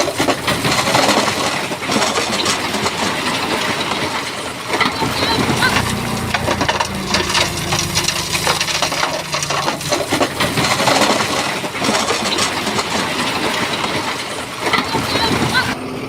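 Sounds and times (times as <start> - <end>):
diesel engine running low: 3.8 - 14.0
rocks clattering and grinding: 5.4 - 14.1.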